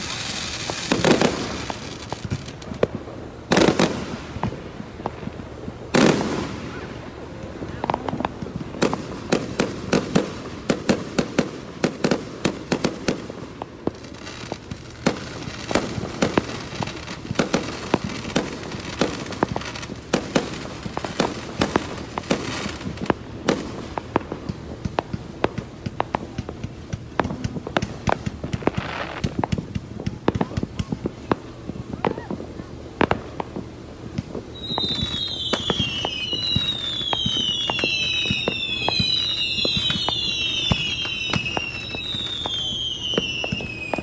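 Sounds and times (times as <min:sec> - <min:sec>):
firework shells booming: 0:00.0 - 0:32.4
firework cracks and pops: 0:00.0 - 0:44.0.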